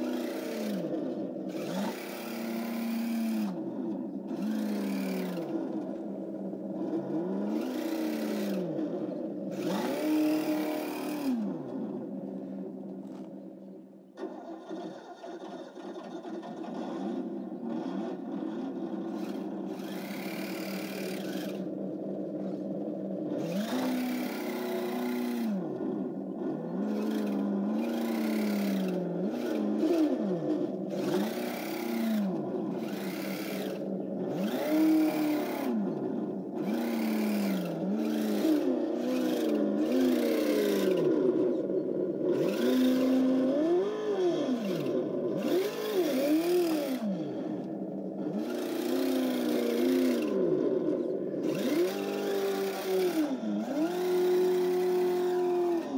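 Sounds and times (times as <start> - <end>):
simulated engine revving: 0.0 - 55.9.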